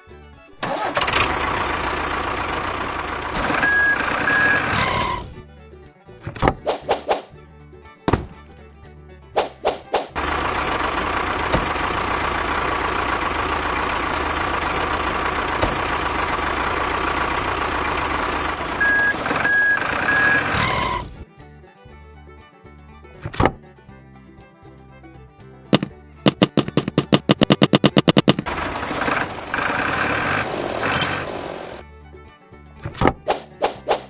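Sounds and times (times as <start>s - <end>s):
truck engine running: 0.0s - 34.0s
reversing beeps: 3.6s - 4.7s, 18.8s - 20.6s
sharp knocks: 8.1s - 8.4s, 9.4s - 10.2s, 25.7s - 28.5s.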